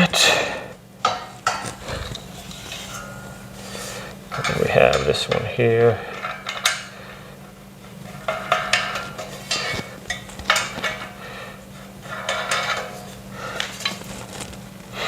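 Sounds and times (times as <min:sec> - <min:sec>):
metal hardware clinking and rattling: 0:01.0 - 0:03.7, 0:04.3 - 0:06.9, 0:07.9 - 0:11.2, 0:12.0 - 0:14.5.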